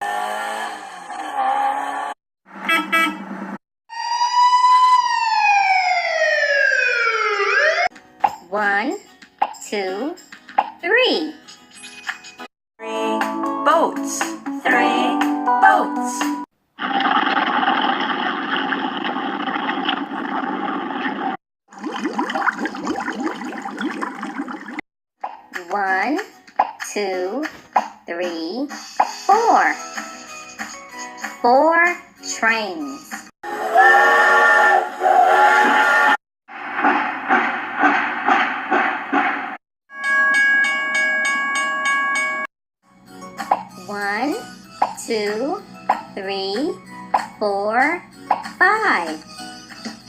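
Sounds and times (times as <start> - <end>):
quick rising gurgles: 16.8 - 24.8
rushing water splashing: 16.8 - 24.8
train horn: 33.5 - 36.2.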